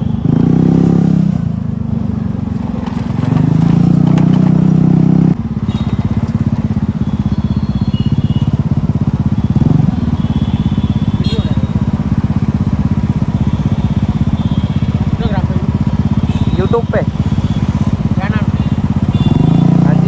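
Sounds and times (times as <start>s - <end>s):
scooter engine running: 0.0s - 20.0s.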